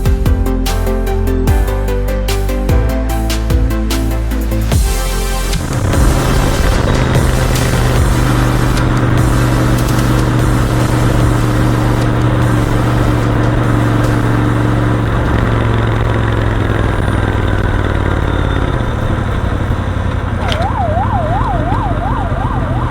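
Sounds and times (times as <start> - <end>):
motorcycle engine running: 4.7 - 22.9.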